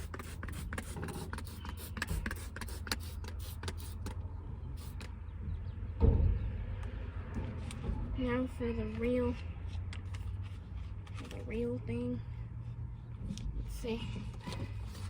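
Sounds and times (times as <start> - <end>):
low steady hum: 0.0 - 15.0
loud thump: 6.0 - 8.4.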